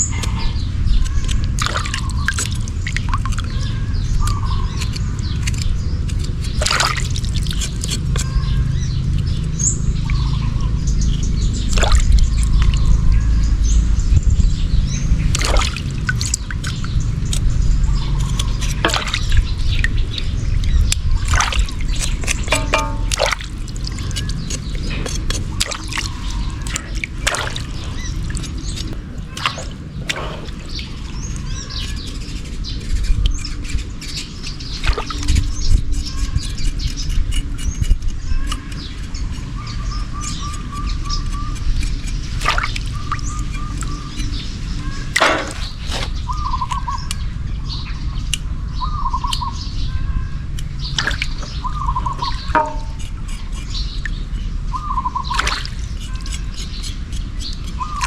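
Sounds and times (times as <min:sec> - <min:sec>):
steady low rumble: 0:00.0 - 0:36.5
water sloshing and dripping: 0:01.1 - 0:05.6, 0:06.2 - 0:13.1, 0:15.1 - 0:32.3, 0:34.2 - 0:35.6, 0:41.8 - 0:47.1, 0:50.8 - 0:58.0
clicks and knocks of handling: 0:20.9 - 0:30.8.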